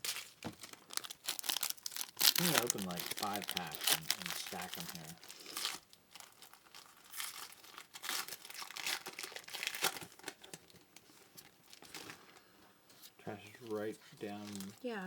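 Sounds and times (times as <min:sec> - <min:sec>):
card pack wrappers tearing: 0:00.0 - 0:10.7, 0:13.6 - 0:14.8.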